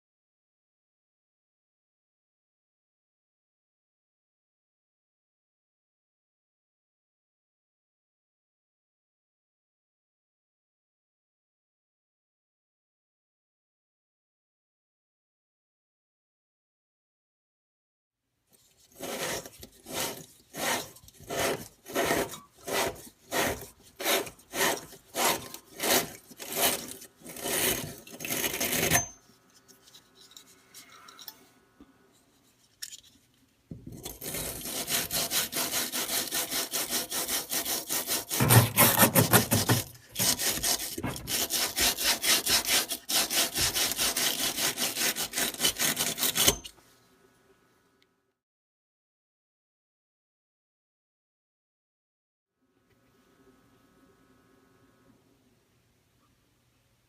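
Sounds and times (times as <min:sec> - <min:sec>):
hand saw sawing: 0:18.8 - 0:29.2, 0:34.0 - 0:46.7.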